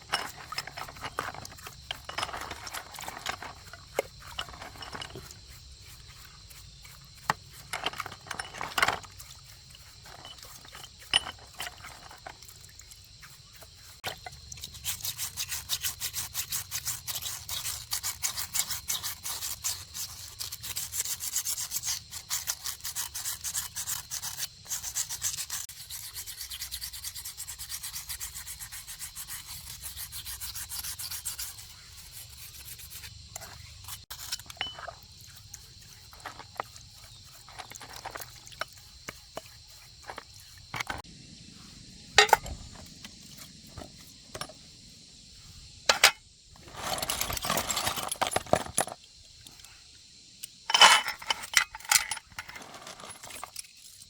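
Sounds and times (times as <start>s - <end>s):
parts clicking and knocking: 0.0s - 5.4s, 7.2s - 9.4s, 10.0s - 13.0s, 34.2s - 35.1s, 40.0s - 41.1s, 42.2s - 44.6s, 45.9s - 49.7s, 50.4s - 53.8s
hand scrubbing strokes on workpiece: 35.2s - 41.0s.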